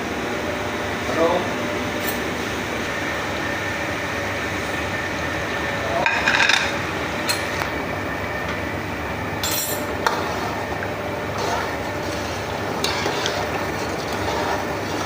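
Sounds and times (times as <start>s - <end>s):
metal ladle scraping a pot: 11.3s - 15.0s.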